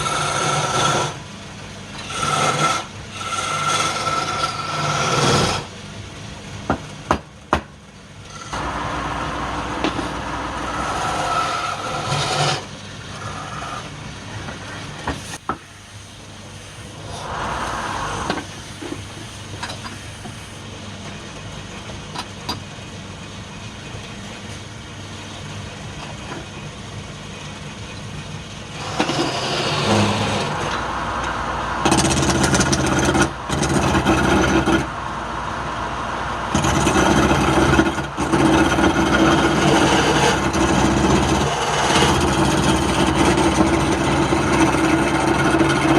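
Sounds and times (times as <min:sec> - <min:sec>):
wood lathe motor humming: 0:00.0 - 0:01.1, 0:02.0 - 0:05.6, 0:08.3 - 0:13.8, 0:16.9 - 0:19.0, 0:28.7 - 0:45.9
tool scraping spinning wood: 0:00.0 - 0:01.2, 0:02.0 - 0:05.7, 0:08.3 - 0:15.5, 0:16.8 - 0:20.6, 0:28.6 - 0:35.1, 0:35.7 - 0:45.9.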